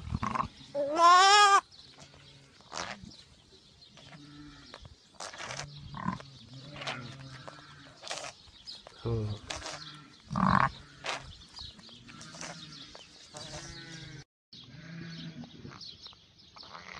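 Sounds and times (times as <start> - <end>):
lamb bleating: 0.2 - 2.9, 5.4 - 8.3, 12.1 - 15.5.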